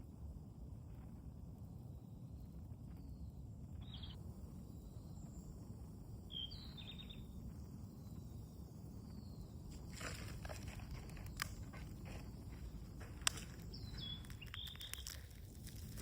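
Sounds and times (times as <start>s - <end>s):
outdoor background noise: 0.0s - 16.0s
small bird chirping: 3.8s - 4.2s, 6.3s - 7.4s, 11.2s - 16.0s.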